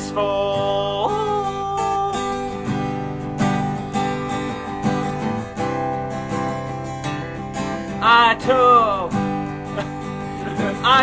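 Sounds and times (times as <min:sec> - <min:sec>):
wavering vocal note: 0:00.0 - 0:02.8
acoustic guitar strumming: 0:00.0 - 0:11.0.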